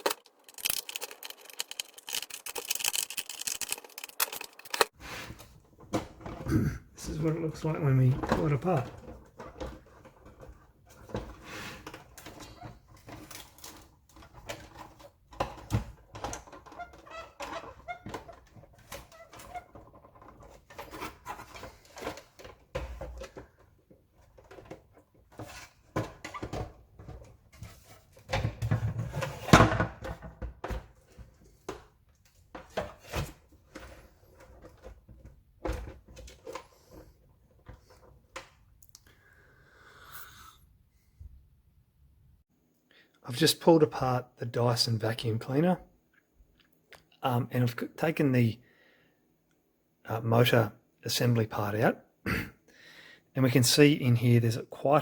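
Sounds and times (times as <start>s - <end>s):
plastic parts clicking and creaking: 0.0s - 5.0s, 5.8s - 39.1s.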